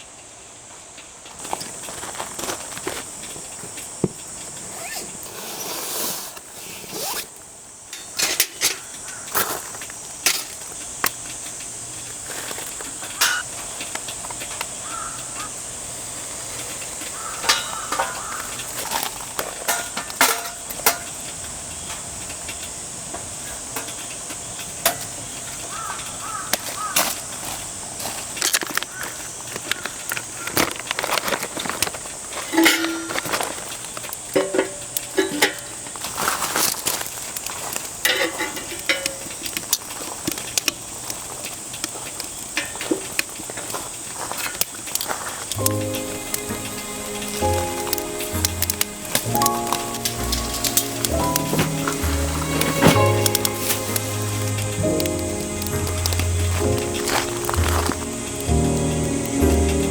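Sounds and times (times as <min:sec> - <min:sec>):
rain hissing: 0:00.0 - 0:59.9
objects clicking and clinking: 0:16.6 - 0:21.4, 0:23.6 - 0:59.9.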